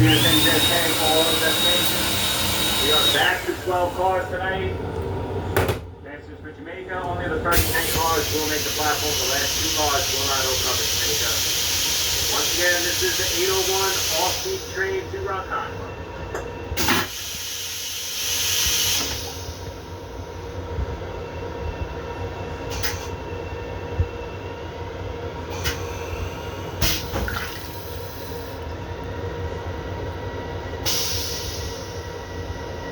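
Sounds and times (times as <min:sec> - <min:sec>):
toilet flushing: 0:00.0 - 0:04.4, 0:07.4 - 0:15.1, 0:25.5 - 0:28.7
train rumble: 0:00.0 - 0:17.5.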